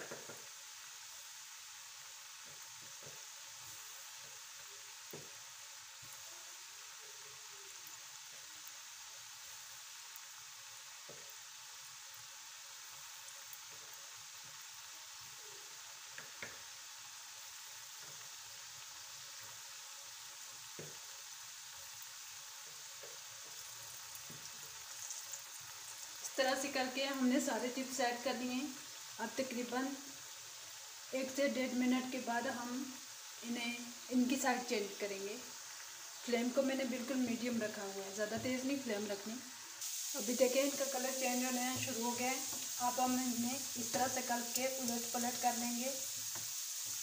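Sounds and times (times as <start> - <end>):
potatoes sizzling in hot oil: 0.0 - 47.0.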